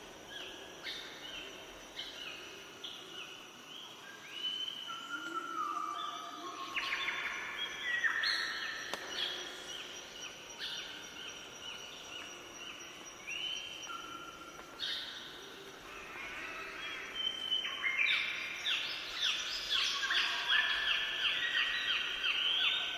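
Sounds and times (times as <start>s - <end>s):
songbirds singing: 0.0s - 22.9s.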